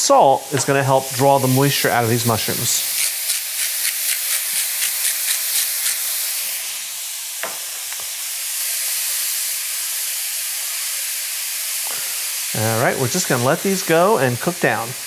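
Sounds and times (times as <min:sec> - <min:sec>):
mushrooms sizzling in a skillet: 0:00.0 - 0:15.0
pepper mill grinding: 0:02.7 - 0:06.3.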